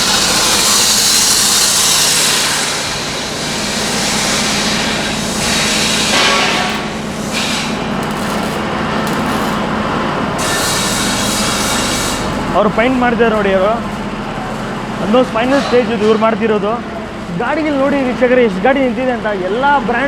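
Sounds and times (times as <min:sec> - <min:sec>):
air tool hissing loudly: 0:00.0 - 0:09.7, 0:10.4 - 0:13.9
steady machine hum: 0:00.0 - 0:19.1.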